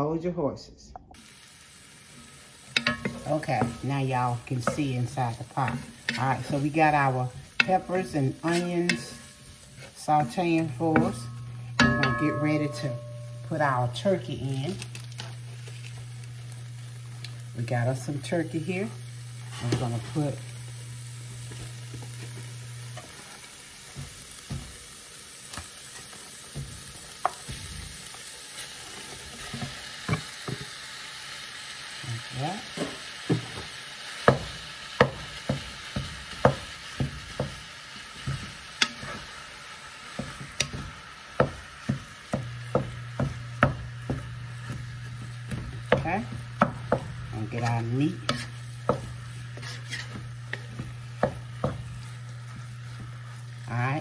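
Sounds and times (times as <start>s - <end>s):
low steady hum: 0.8s - 24.7s
meat and vegetables sizzling: 1.1s - 54.0s
spatula knocking and scraping pot: 2.7s - 14.1s, 21.5s - 24.8s, 32.8s - 39.4s, 40.1s - 54.0s.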